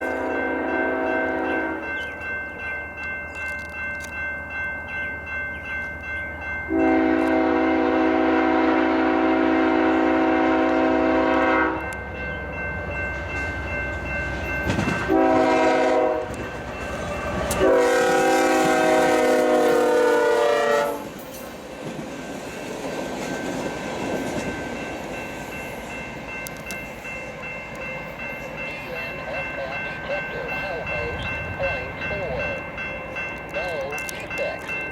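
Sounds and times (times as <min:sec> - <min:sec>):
locomotive air horn chord: 0:00.0 - 0:01.9, 0:06.7 - 0:12.0, 0:15.1 - 0:16.4, 0:17.5 - 0:21.1.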